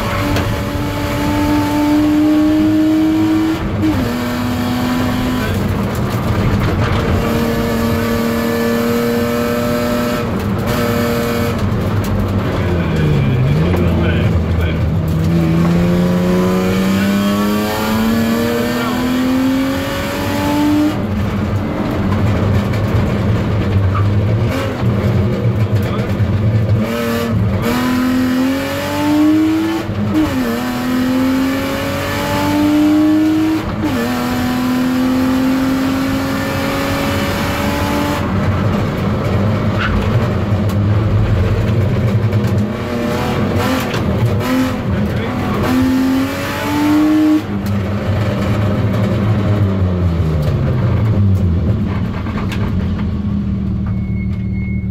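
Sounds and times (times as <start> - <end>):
car engine revving through gears: 0.0 - 54.0.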